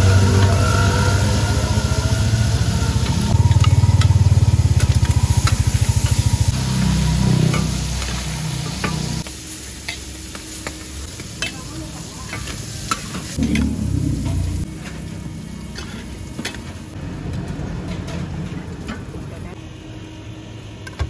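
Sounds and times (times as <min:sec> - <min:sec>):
low engine throb: 0:00.0 - 0:07.7, 0:13.4 - 0:15.5
seafood sizzling in a pan: 0:00.2 - 0:17.0
metal spatula clinking and scraping: 0:15.7 - 0:16.7.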